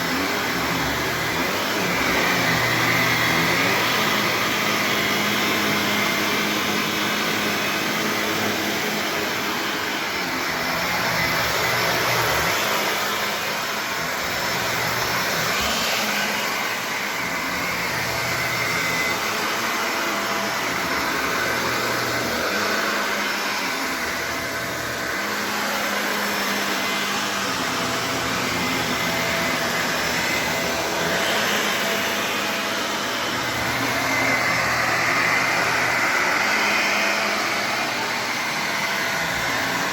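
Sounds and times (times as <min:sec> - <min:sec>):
vacuum cleaner running on rug: 0:00.0 - 0:39.9.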